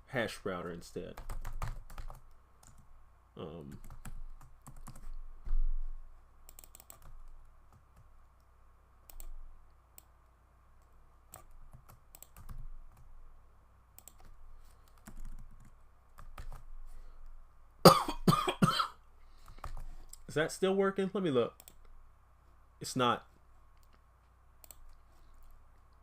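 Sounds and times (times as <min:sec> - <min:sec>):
keyboard typing clicks: 0:06.5 - 0:08.1, 0:09.1 - 0:09.4, 0:11.3 - 0:13.1, 0:14.0 - 0:16.7, 0:21.6 - 0:21.9, 0:24.6 - 0:25.5.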